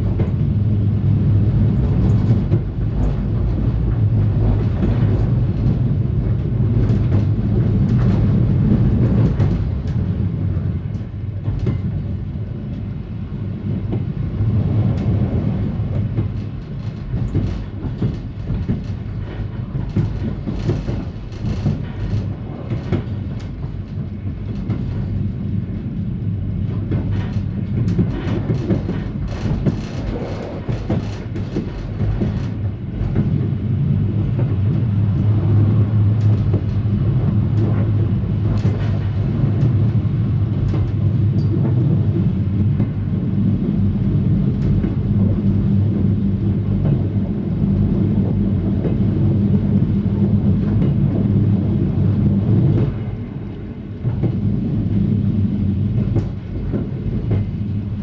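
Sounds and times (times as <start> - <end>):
train low drone: 0.0 - 58.0
wheels clicking over rails: 13.8 - 25.3, 26.6 - 57.7.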